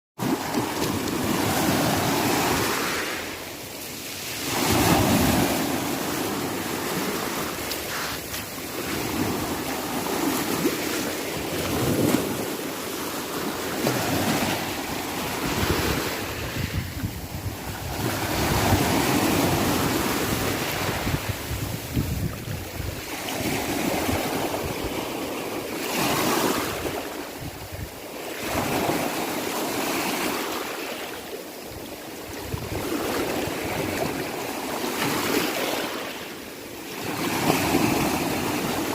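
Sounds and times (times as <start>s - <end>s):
sea waves breaking ashore: 0.2s - 38.9s
wind noise on microphone: 13.8s - 25.2s, 25.9s - 29.2s, 32.2s - 35.5s.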